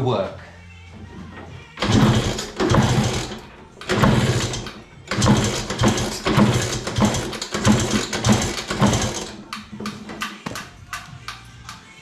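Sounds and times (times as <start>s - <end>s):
scooter engine being kicked over: 1.8s - 10.7s.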